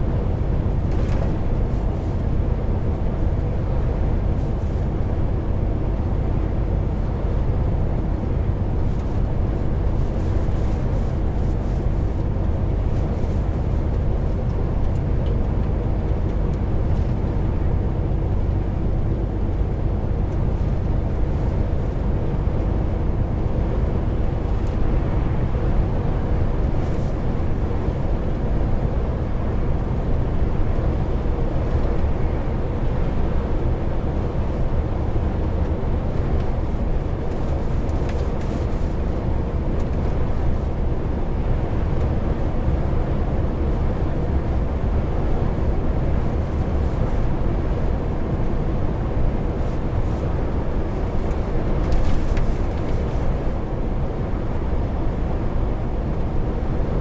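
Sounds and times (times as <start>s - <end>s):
road and tyre noise: 0.0s - 57.0s
truck diesel engine drone: 0.0s - 57.0s.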